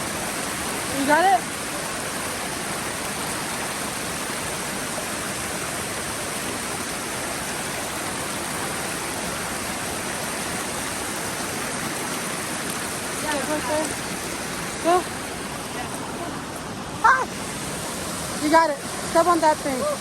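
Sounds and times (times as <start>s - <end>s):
running water: 0.0s - 20.0s.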